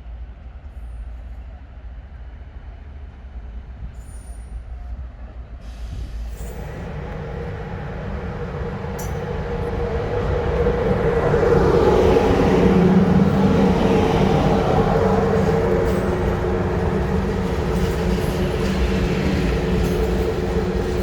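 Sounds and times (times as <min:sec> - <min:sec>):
train pulling into station: 0:00.0 - 0:21.0
wheel and rail noise: 0:06.0 - 0:21.0
low steady rumble: 0:06.5 - 0:21.0.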